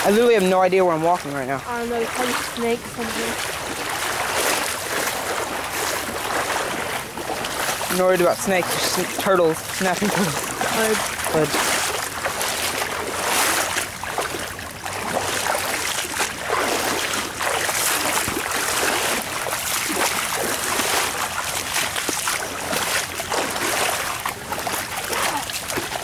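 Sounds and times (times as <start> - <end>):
floodwater flowing: 0.0 - 26.0
people wading through water: 0.0 - 26.0.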